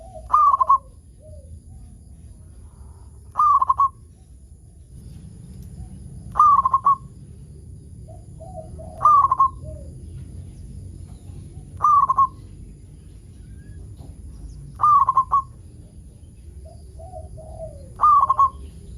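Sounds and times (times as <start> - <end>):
dove cooing: 0.0 - 1.6, 3.3 - 4.1, 5.8 - 7.2, 8.0 - 10.3, 11.2 - 12.4, 14.7 - 18.9
steady low hum: 0.0 - 18.9.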